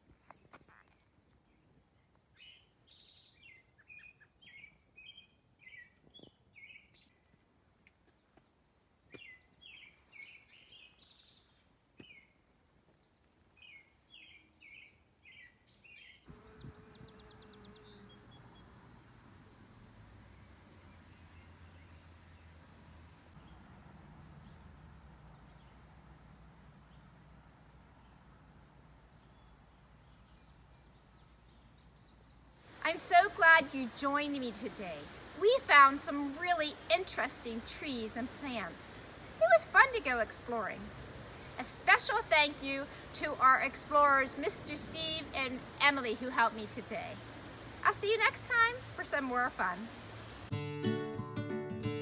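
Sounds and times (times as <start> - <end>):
faint outdoor noise with low hum: 0.0 - 50.6
faint bird chirping: 0.1 - 7.4, 8.0 - 18.8, 29.0 - 50.5.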